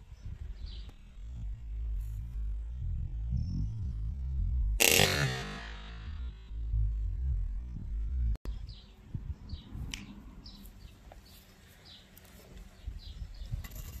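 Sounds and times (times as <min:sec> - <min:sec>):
bird chirping: 0:00.0 - 0:04.8, 0:06.0 - 0:13.7
low thumps: 0:00.0 - 0:09.3
electronic music with heavy bass: 0:00.9 - 0:08.4.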